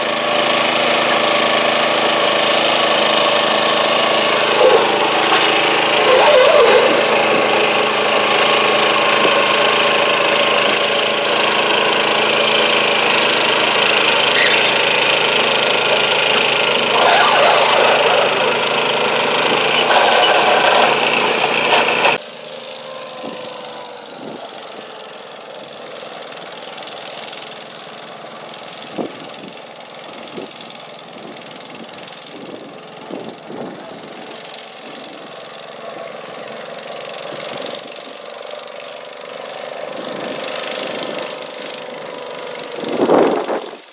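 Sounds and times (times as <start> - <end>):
engine idling: 0.0 - 22.2
garden tractor engine running: 0.0 - 33.1.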